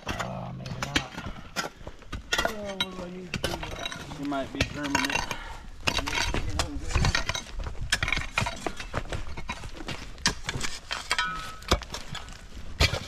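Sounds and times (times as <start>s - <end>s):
hand tools knocking and scraping: 0.0s - 13.0s
loose rock knocking: 0.0s - 13.0s.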